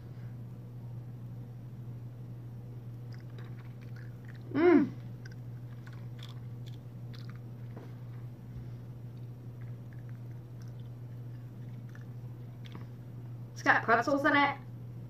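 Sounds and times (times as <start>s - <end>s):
steady low hum: 0.0s - 15.0s
chewing cookie crunches: 2.9s - 13.2s
person voicing mm: 4.5s - 5.0s.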